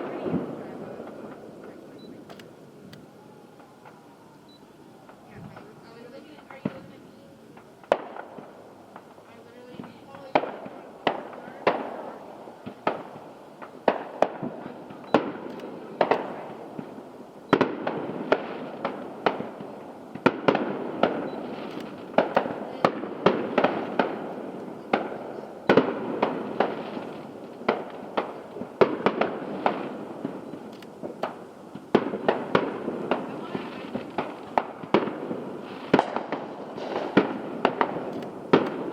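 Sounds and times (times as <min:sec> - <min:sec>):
rumble of echoing reports: 0:00.0 - 0:07.6
distant fireworks bangs: 0:00.0 - 0:38.9.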